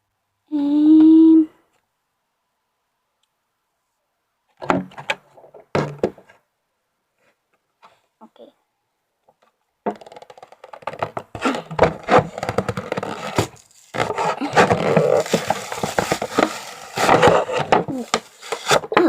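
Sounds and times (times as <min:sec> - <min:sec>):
cardboard and plastic crackling: 0:09.9 - 0:19.0.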